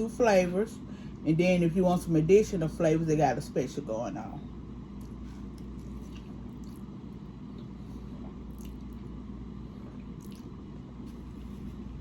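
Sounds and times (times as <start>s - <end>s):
steady low hum: 0.0s - 12.0s
chewing and squishy mouth sounds: 4.9s - 11.9s
soft wet mouth smacks: 7.5s - 9.0s.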